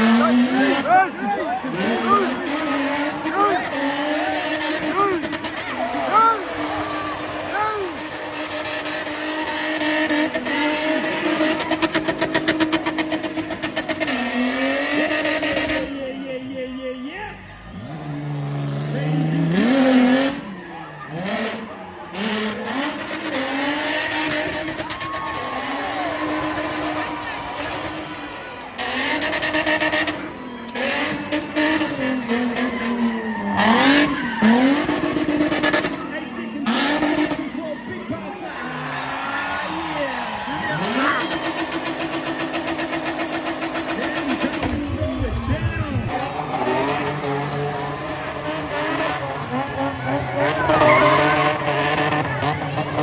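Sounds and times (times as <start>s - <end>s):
car engine at high revs: 0.0s - 16.2s, 17.5s - 53.0s
tyre squeal: 48.8s - 52.0s.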